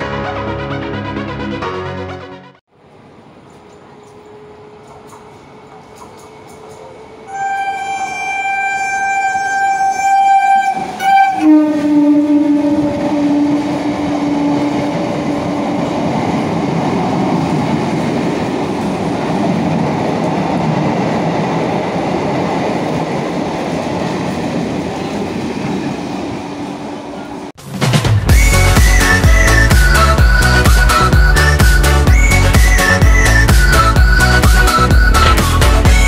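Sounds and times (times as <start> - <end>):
train coaches rushing past: 2.8 - 36.0
train horn: 7.2 - 15.5.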